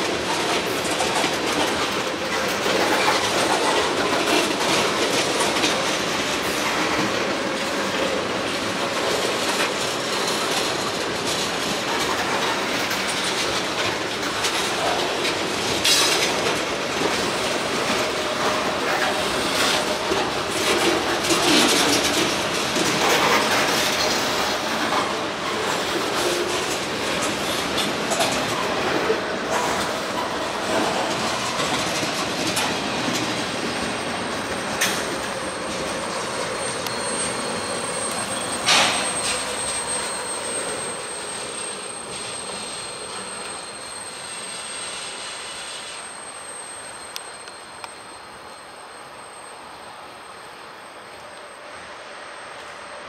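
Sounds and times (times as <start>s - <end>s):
wheels clicking over rail joints: 0.0s - 44.0s
high-pitched wheel squeal: 33.3s - 53.0s.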